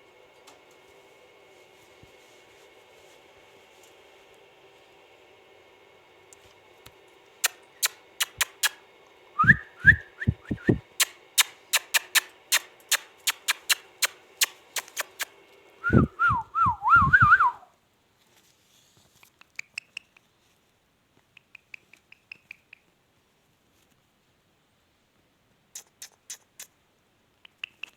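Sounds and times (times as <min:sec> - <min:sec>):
sharp clicks: 0:07.4 - 0:08.8, 0:10.4 - 0:15.3, 0:19.2 - 0:20.3, 0:21.3 - 0:22.9, 0:27.4 - 0:27.9
parrot whistling: 0:09.4 - 0:10.8, 0:11.4 - 0:17.7.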